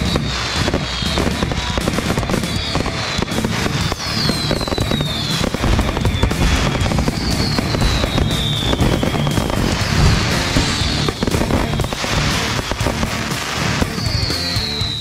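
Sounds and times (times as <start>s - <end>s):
firework whistles falling in pitch: 0.0s - 12.8s, 13.4s - 15.0s
fireworks popping and crackling: 0.0s - 15.0s.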